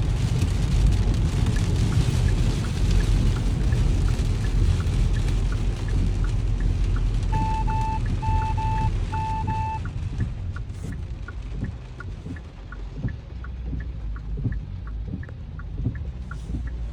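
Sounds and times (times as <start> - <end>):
car rumble from inside: 0.0 - 16.9
light ticking: 0.1 - 16.9
short electronic beeps: 7.3 - 9.8.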